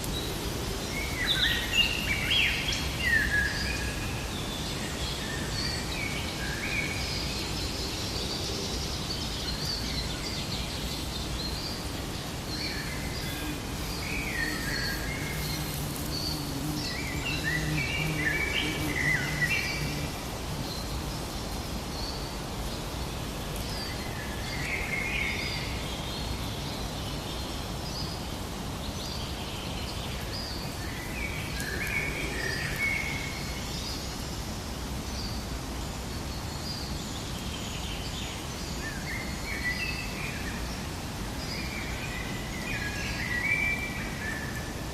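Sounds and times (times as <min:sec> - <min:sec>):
steady background hiss: 0:00.0 - 0:44.9
birds chirping and trilling: 0:09.2 - 0:21.2.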